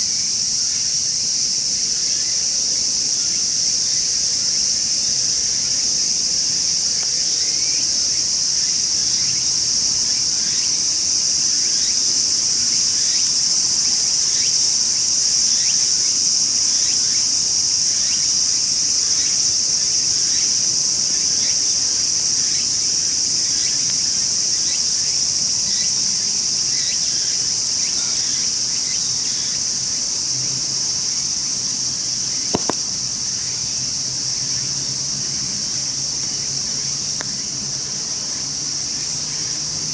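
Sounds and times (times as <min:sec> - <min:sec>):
insects droning: 0:00.0 - 0:39.9
sharp click: 0:32.6 - 0:32.9.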